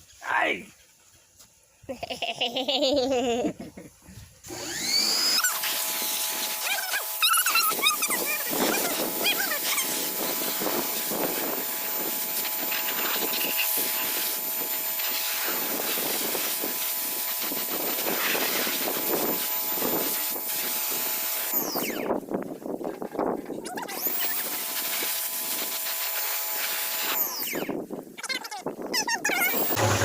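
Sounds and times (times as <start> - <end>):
water spraying onto metal: 5.5 - 21.6, 24.0 - 27.4.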